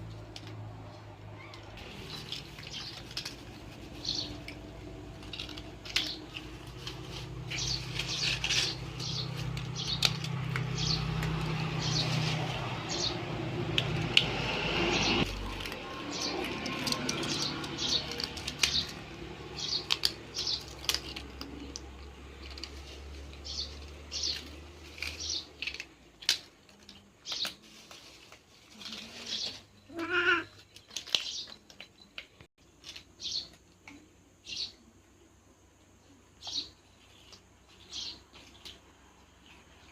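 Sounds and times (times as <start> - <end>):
cats crunching crackers: 0.0 - 14.5, 15.2 - 34.0
cat meowing: 29.9 - 30.5.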